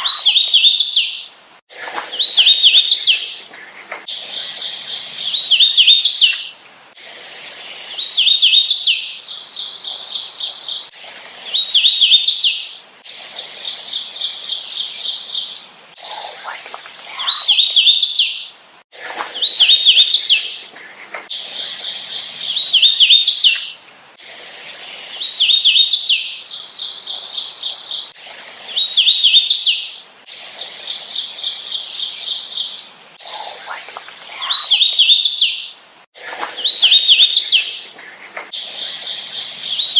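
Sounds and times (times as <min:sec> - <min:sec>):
bird repeated note series: 0:00.0 - 0:00.8
warbler whistled song: 0:00.0 - 0:01.4, 0:02.1 - 0:03.4, 0:04.1 - 0:06.6, 0:07.7 - 0:10.9, 0:11.5 - 0:12.8, 0:13.6 - 0:18.6, 0:19.3 - 0:20.7, 0:21.3 - 0:23.8, 0:24.8 - 0:30.0, 0:30.8 - 0:35.8, 0:36.6 - 0:39.9.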